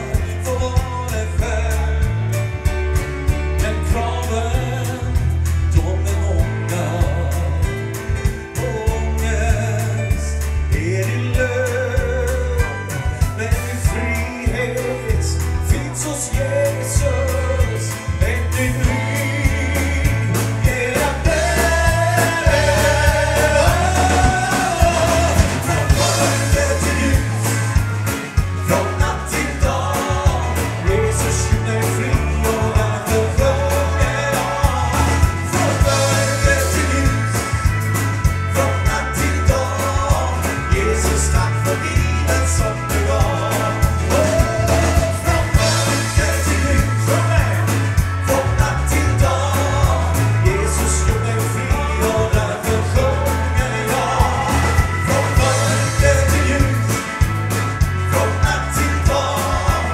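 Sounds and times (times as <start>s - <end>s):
bass: 0.0s - 59.9s
steady drum beat: 0.0s - 59.9s
lead singing: 3.6s - 59.9s.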